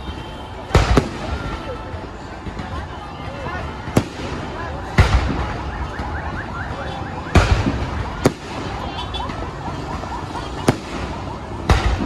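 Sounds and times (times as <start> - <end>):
distant fireworks crackle: 0.0 - 12.0
firework bangs: 0.0 - 12.0.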